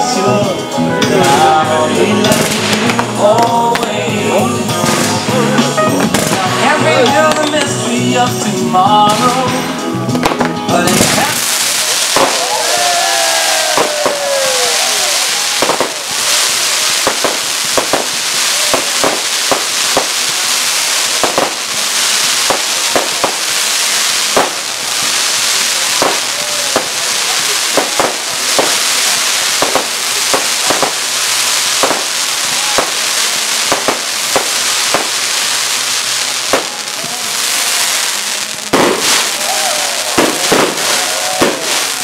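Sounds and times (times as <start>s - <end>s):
fireworks hissing and crackling: 0.0s - 42.0s
fireworks sharp bangs: 2.2s - 4.1s, 4.7s - 7.8s, 10.2s - 42.0s
firework whistle: 11.1s - 42.0s.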